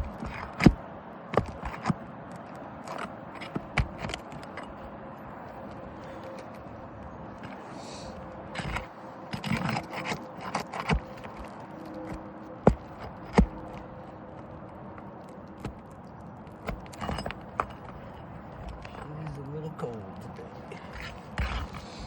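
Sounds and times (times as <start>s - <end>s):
background hum: 0.0s - 22.0s
scraping and rustling on roof: 0.0s - 22.0s.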